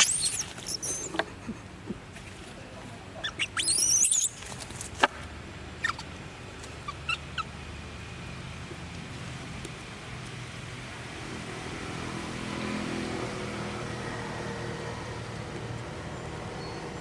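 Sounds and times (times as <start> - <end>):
baby monkey squealing: 0.0 - 1.2, 3.2 - 4.4, 5.8 - 6.1, 6.8 - 7.5.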